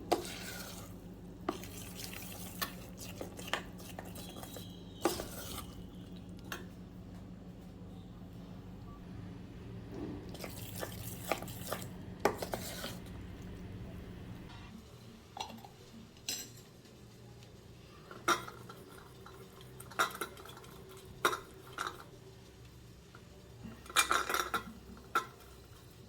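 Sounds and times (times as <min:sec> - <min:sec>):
low steady hum: 0:00.0 - 0:16.4
dishes and cutlery clinking: 0:01.5 - 0:05.8, 0:15.4 - 0:17.0, 0:18.0 - 0:22.1, 0:23.6 - 0:25.8.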